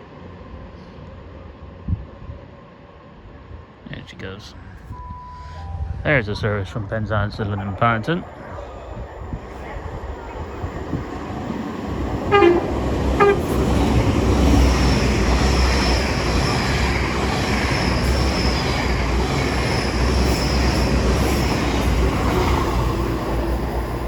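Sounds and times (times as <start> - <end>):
train engines droning: 0.0 - 24.0
train horn toots: 12.1 - 13.8.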